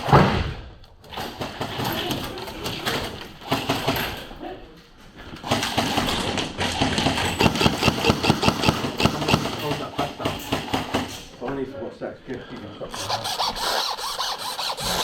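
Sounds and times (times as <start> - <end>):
airsoft guns firing: 5.4 - 11.2.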